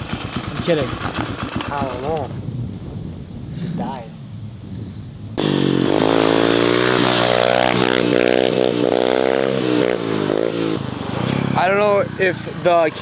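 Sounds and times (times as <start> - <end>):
small motorbike engine revving: 5.4 - 13.0.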